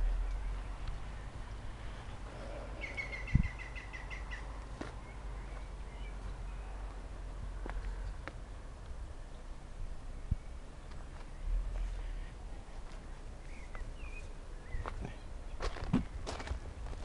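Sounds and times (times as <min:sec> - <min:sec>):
low microphone rumble: 0:00.0 - 0:17.0
small bird chirping: 0:02.6 - 0:06.8.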